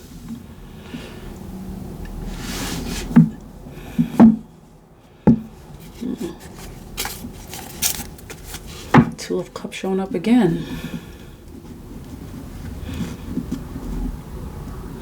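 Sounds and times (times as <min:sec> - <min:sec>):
cards rustling together: 0:05.8 - 0:08.9.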